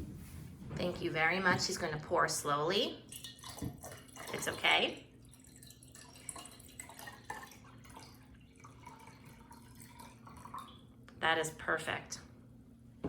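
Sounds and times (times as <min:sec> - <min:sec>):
water trickling into glass: 0:03.1 - 0:10.9
water drips: 0:03.1 - 0:11.0.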